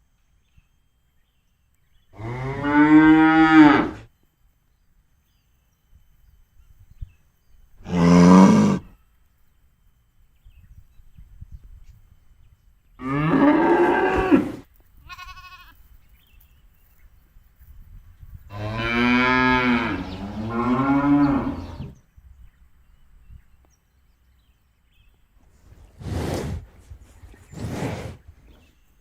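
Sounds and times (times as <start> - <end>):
cows mooing: 7.9 - 8.9, 13.0 - 14.6, 18.6 - 21.9.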